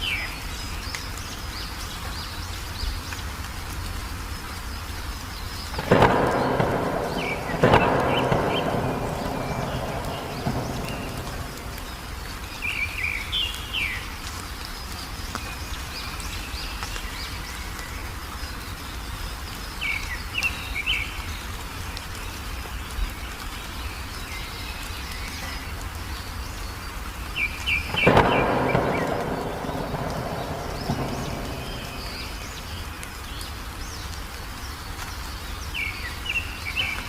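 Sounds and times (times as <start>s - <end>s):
birds chirping: 4.4s - 37.0s
thunder rumble: 5.6s - 13.9s, 27.7s - 33.4s
steady low background: 5.8s - 12.9s, 27.9s - 33.1s.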